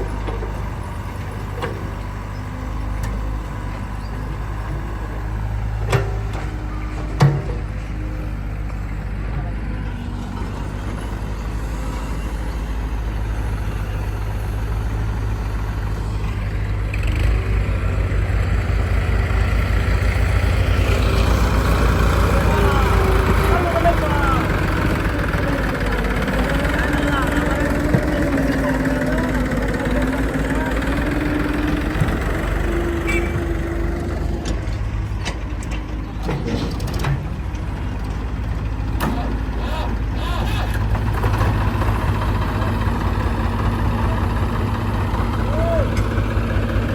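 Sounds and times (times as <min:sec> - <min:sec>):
diesel engine throbbing: 0:00.0 - 0:46.9
held whine: 0:09.8 - 0:36.4.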